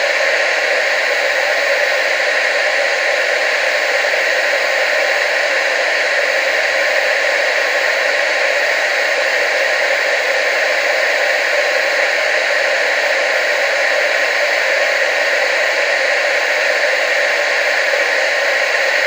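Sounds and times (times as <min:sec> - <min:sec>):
tv static hiss: 0:00.0 - 0:19.0.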